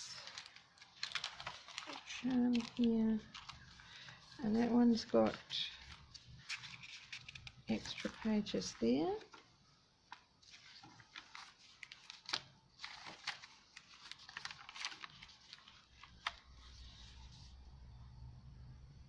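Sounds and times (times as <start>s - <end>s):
paper rustling: 0.0s - 17.6s.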